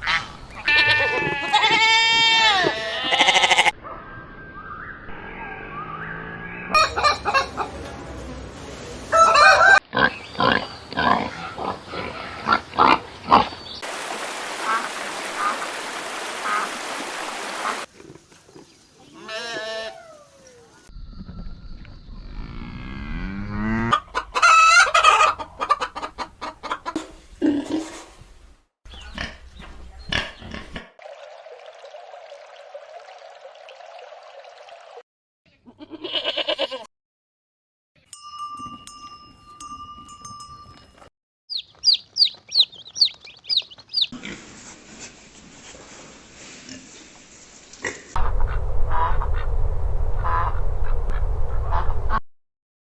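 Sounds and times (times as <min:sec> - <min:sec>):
sheep bleat: 0:00.6 - 0:03.8, 0:19.1 - 0:20.1, 0:35.7 - 0:36.9
high falling bird chirps: 0:04.0 - 0:06.8, 0:41.5 - 0:44.2.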